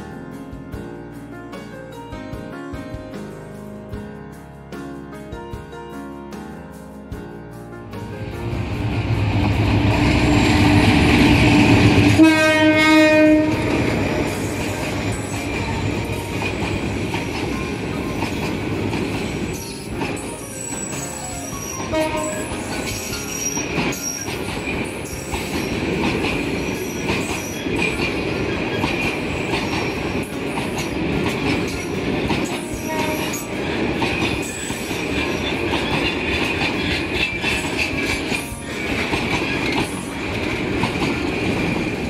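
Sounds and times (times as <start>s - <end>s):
wheels clattering over rail joints: 13.6s - 42.0s
high metallic wheel squeal: 14.2s - 16.6s, 19.2s - 30.1s
sharp wheel squeaks: 19.5s - 25.8s.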